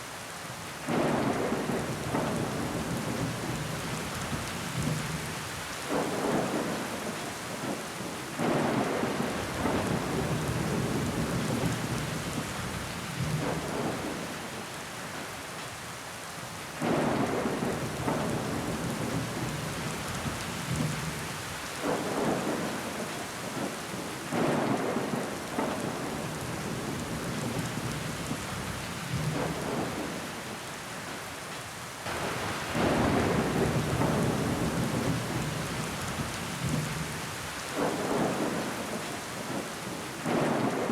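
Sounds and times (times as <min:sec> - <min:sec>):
rain against a window: 0:00.0 - 0:40.9.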